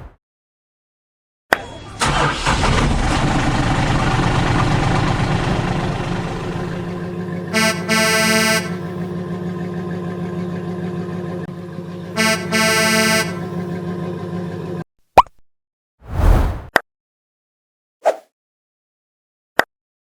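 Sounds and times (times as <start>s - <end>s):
motor vehicle running: 1.6s - 14.9s
car horn honking: 7.0s - 10.6s, 12.0s - 13.9s.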